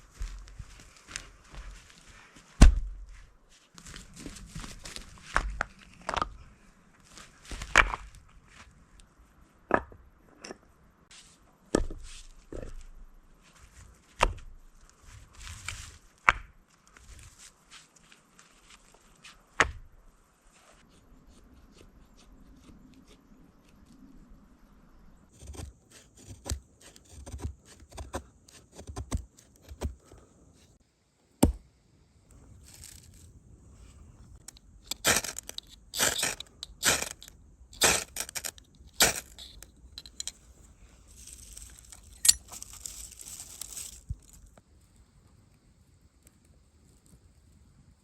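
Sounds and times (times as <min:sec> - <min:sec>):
sticks cracking and knocking: 0:07.5 - 0:08.2, 0:25.4 - 0:30.2, 0:34.4 - 0:40.5
scraping rustle: 0:32.6 - 0:34.2, 0:34.9 - 0:44.5.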